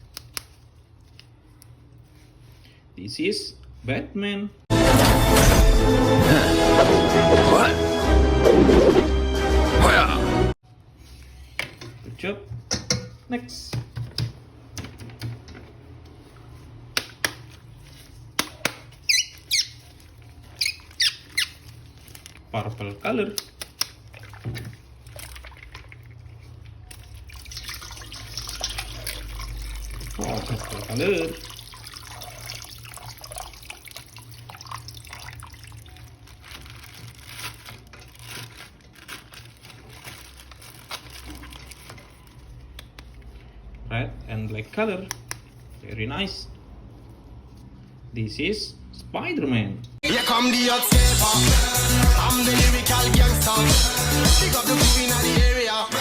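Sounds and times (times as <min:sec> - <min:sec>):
high squeaks falling in pitch: 0:19.1 - 0:19.8
water splashing at a sink: 0:23.3 - 0:36.3.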